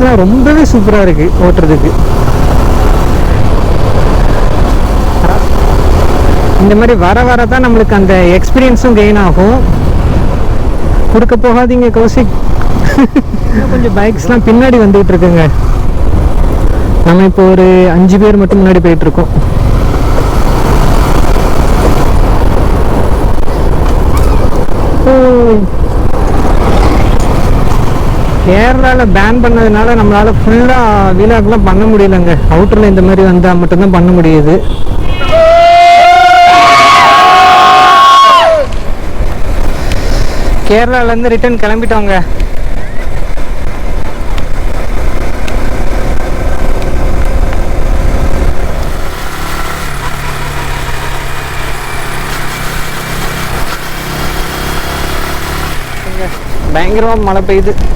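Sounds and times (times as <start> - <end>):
wind rumble on microphone: 0.0 - 34.0, 34.6 - 50.3, 52.9 - 57.9
motorcycle engine: 0.0 - 57.9
horn with falling pitch: 35.0 - 38.7.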